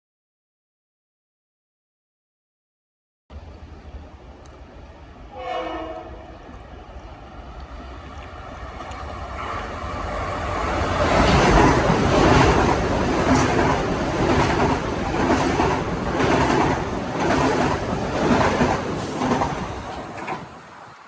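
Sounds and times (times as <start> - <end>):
train rumble passing: 3.3 - 21.0
train horn blast: 5.3 - 6.5, 9.3 - 10.0.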